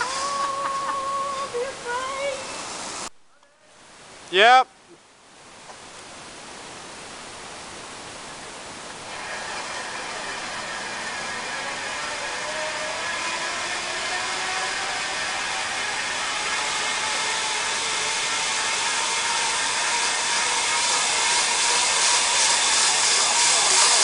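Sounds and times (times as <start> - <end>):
zip-wire trolley hissing on cable: 0.0 - 3.1, 9.0 - 24.0.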